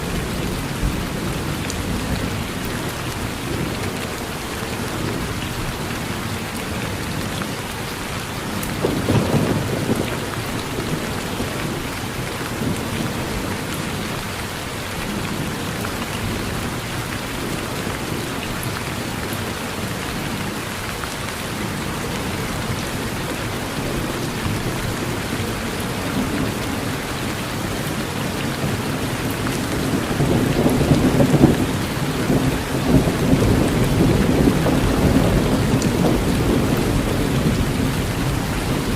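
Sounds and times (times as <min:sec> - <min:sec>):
rain falling on a porch: 0:00.0 - 0:38.9
thunder rumbling: 0:08.4 - 0:14.3, 0:27.9 - 0:38.9.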